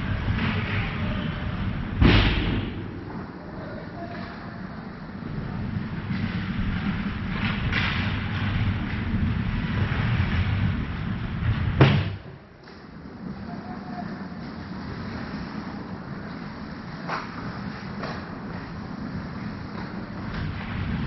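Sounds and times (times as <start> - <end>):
low rumble of rink: 0.0 - 21.0
sharp crack: 1.9 - 3.4.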